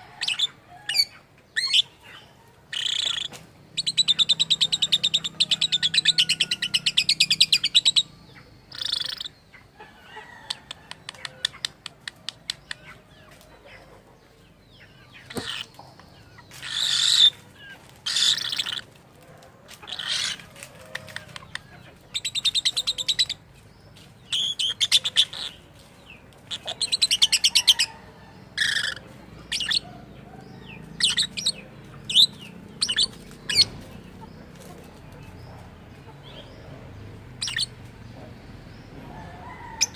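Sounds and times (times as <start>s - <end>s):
lovebird chattering trills: 2.7s - 9.4s, 15.2s - 15.7s, 16.3s - 18.9s, 19.8s - 20.4s, 21.2s - 23.4s, 24.3s - 25.6s, 26.5s - 28.0s, 28.6s - 29.8s, 31.0s - 33.8s, 37.4s - 37.8s
quick bird clicks: 10.5s - 12.9s.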